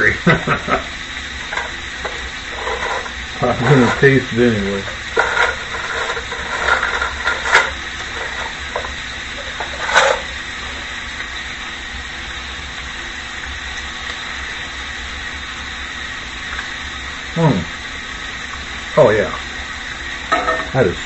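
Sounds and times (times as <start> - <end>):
pan sizzling on stove: 0.0 - 21.0.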